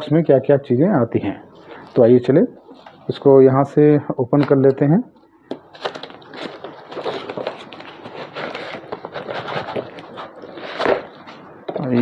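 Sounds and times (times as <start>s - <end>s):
box scraping and rustling: 5.8s - 11.4s.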